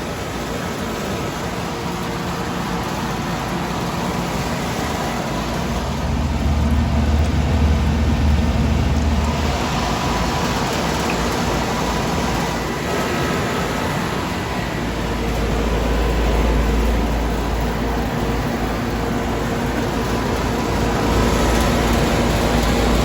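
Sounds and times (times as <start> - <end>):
heat pump humming: 0.0 - 23.0
deeper low hum: 5.4 - 11.1.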